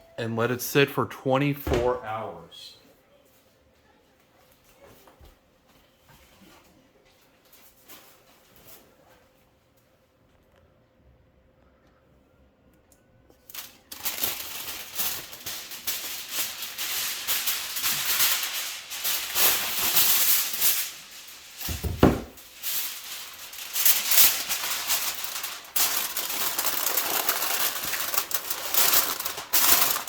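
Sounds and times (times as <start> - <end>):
aluminum foil crinkling: 13.4 - 30.0
dull thump: 21.7 - 22.4.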